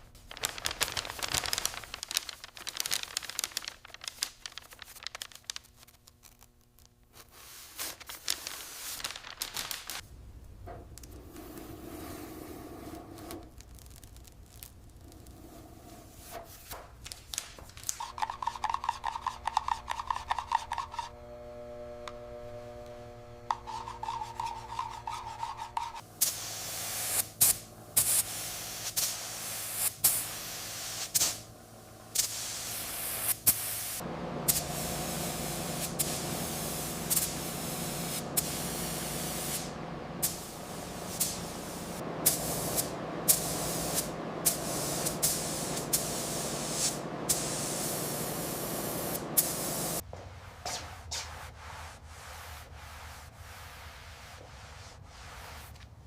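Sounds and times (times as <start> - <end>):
steady hum: 18.1 - 50.0
hand tool rasping on workpiece: 23.5 - 26.0.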